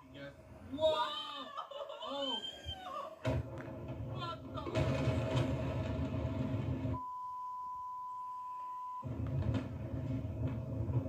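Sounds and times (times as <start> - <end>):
censor bleep tone: 7.0 - 9.1.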